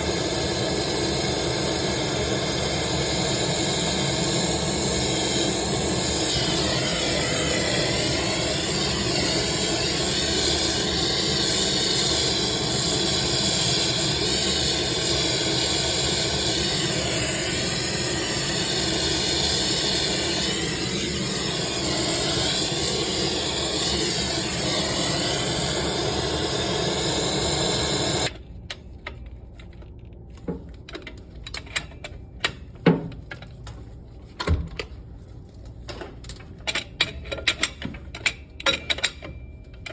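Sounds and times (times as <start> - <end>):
pressurised gas hissing: 0.0 - 28.3.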